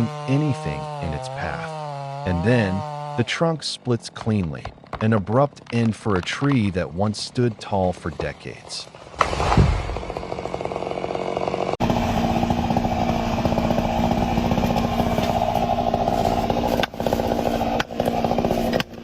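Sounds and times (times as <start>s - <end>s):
chainsaw cutting wood: 0.0s - 19.0s
thump: 9.2s - 10.0s.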